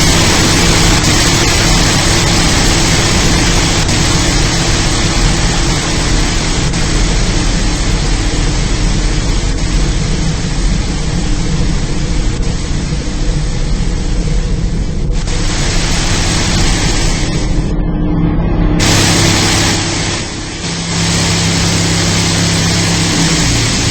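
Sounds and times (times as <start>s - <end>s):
car wash water rush: 0.0s - 17.7s, 18.8s - 23.9s
low steady hum: 0.0s - 23.9s.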